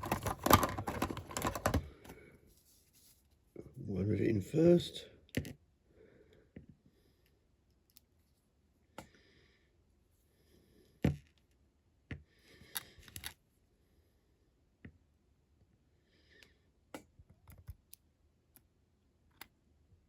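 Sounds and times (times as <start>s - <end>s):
clicks and taps of small parts: 16.9s - 18.7s.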